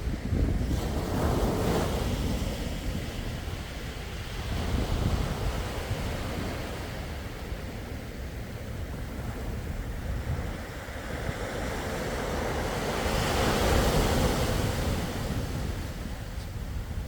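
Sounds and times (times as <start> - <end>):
low rumble of surf: 0.0 - 17.0
wind on microphone: 0.0 - 17.0
sea waves breaking: 9.0 - 17.0.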